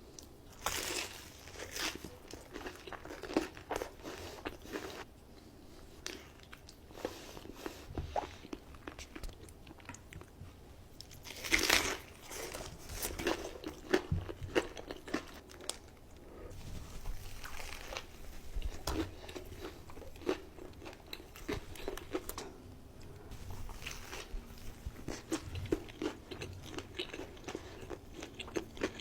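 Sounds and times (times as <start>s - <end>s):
crunchy food chewing: 0.2s - 5.1s, 11.0s - 29.0s.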